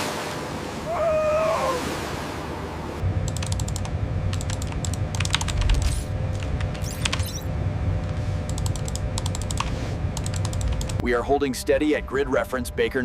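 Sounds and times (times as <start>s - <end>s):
sea-like noise: 0.0s - 10.5s
low steady hum: 0.0s - 13.0s
sharp mechanical clicks: 3.2s - 7.5s, 8.4s - 11.0s.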